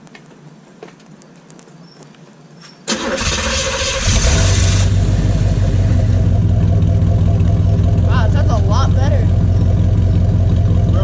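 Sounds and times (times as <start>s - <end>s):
starter motor cranking: 2.9s - 4.9s
car engine idling loudly: 4.0s - 11.0s.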